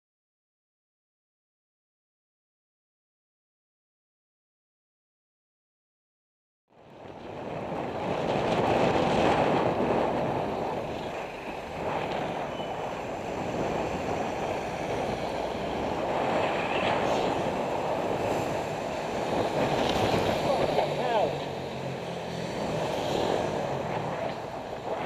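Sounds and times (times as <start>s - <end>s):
road traffic: 6.8s - 25.0s
wind on camera microphone: 6.8s - 25.0s.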